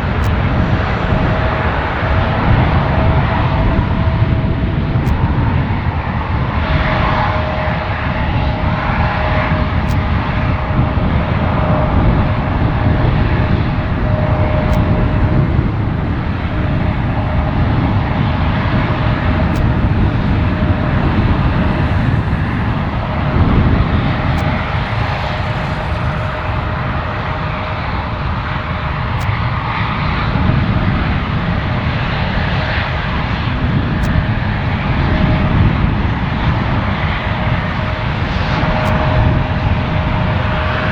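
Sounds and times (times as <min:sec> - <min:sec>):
jet engines running: 0:00.0 - 0:40.9
thin even whine: 0:09.6 - 0:29.5.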